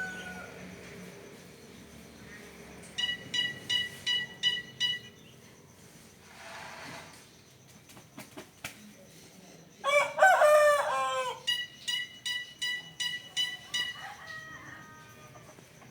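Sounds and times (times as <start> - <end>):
bird crowing call: 0.0 - 0.6, 9.9 - 11.6, 13.8 - 15.6.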